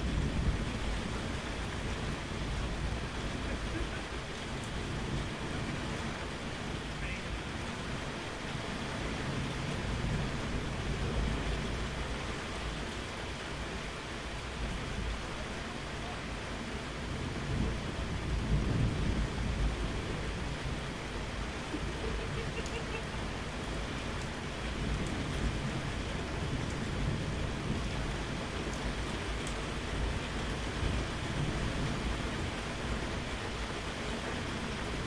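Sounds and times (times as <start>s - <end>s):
low rolling thunder: 0.0s - 7.0s, 17.0s - 22.4s, 23.5s - 35.0s
steady rain falling: 0.0s - 35.0s.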